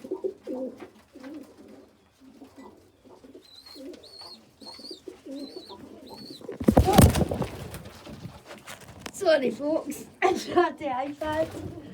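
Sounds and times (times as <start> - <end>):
pigeons cooing: 0.0 - 8.8.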